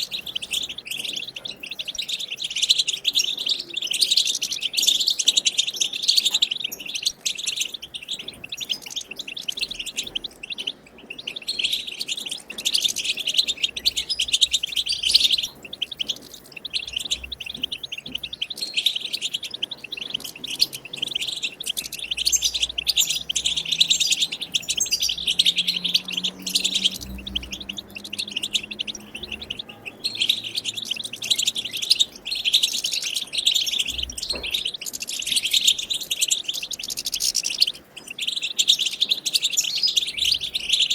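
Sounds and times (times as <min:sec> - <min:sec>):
goldfinch twittering: 0:00.0 - 0:40.9.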